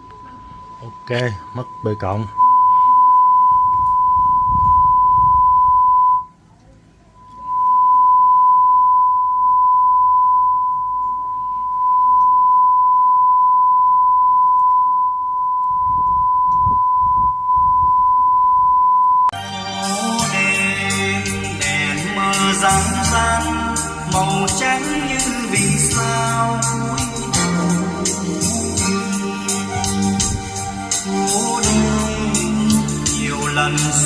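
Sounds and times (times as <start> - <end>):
sine test tone: 0.0 - 6.4, 7.1 - 19.4.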